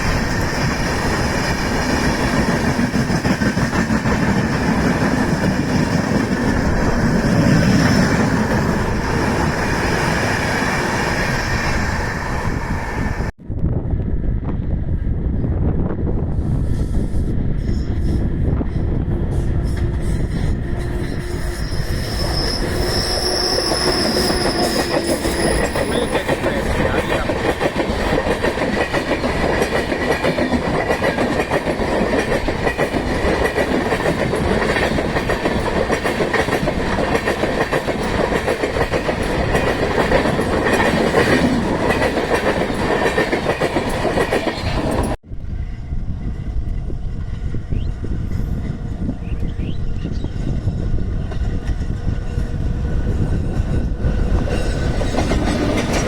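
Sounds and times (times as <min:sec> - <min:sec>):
train wheels rumbling and clattering: 0:00.0 - 0:56.0
thin high squeal: 0:20.0 - 0:26.2.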